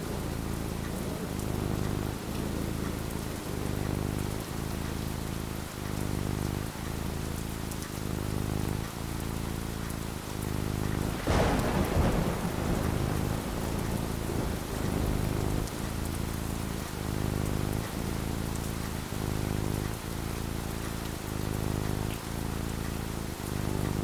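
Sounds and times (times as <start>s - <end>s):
steady rain: 0.0s - 24.0s
rolling thunder: 11.0s - 17.9s
sharp thunderclap: 11.0s - 17.9s.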